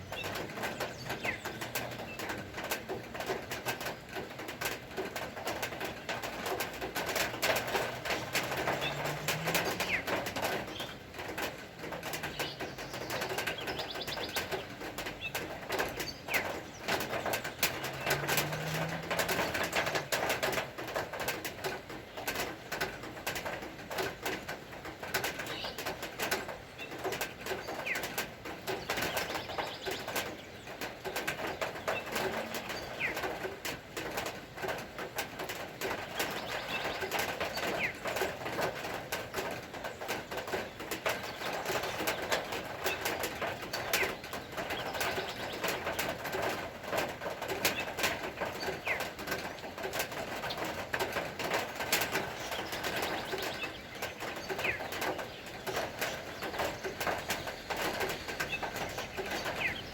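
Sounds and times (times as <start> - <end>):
small birds chirping: 0.0 - 59.9
doves cooing: 5.7 - 11.0, 15.3 - 20.6, 31.4 - 33.5.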